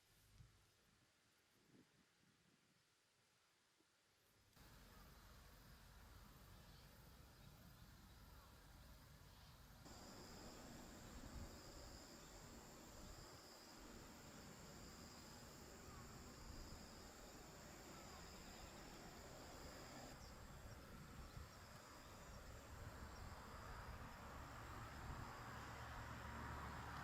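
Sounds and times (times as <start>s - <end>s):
low rumble and hiss: 0.0s - 27.0s
insect pulsing chirp: 9.9s - 25.4s.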